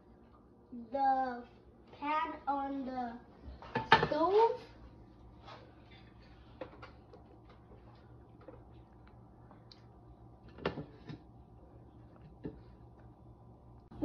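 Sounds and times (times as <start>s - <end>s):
steady low hum: 0.0s - 14.0s
kitchenware knocking and clicking: 3.7s - 4.2s.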